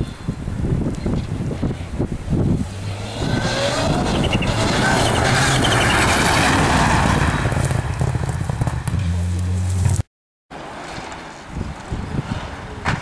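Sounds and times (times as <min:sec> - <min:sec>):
rally car passing at speed: 0:02.5 - 0:10.0.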